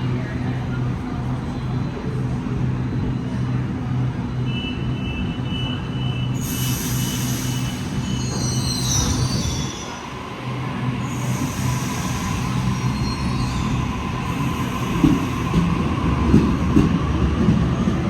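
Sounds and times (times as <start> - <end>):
train low rumble: 0.0 - 18.0
metallic wheel squeal: 6.4 - 10.0.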